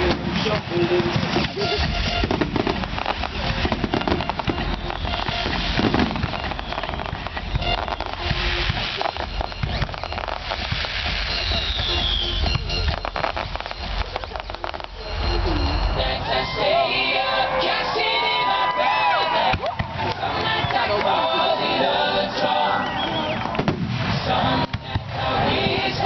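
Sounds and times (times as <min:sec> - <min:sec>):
fireworks crackling and popping: 0:00.0 - 0:26.0
falling firework whistle: 0:01.3 - 0:16.9, 0:22.7 - 0:24.8.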